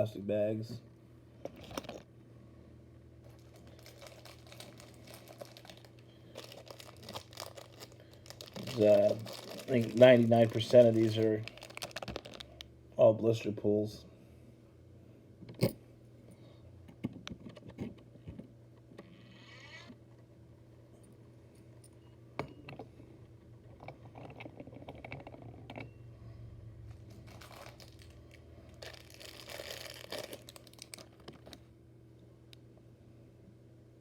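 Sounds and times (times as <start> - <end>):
low steady hum: 0.0 - 34.0
plastic bags crinkling: 3.2 - 12.6, 26.9 - 31.6.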